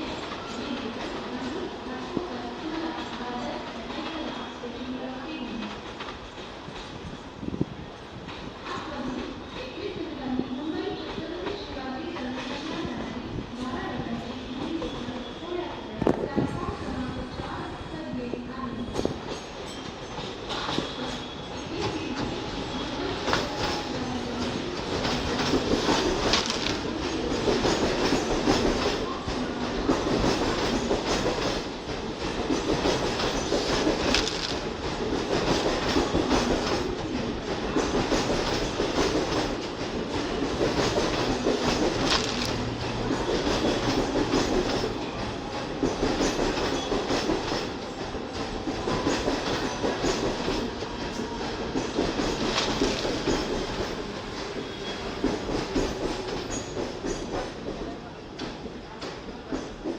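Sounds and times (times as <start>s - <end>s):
train rumble: 0.0s - 59.9s
train wheels clattering over rail joints: 23.2s - 57.8s.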